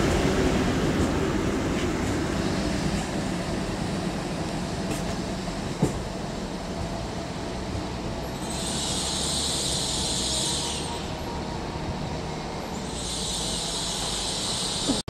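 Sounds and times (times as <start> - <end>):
train running rumble: 0.0 - 15.0
high hiss: 12.9 - 15.0.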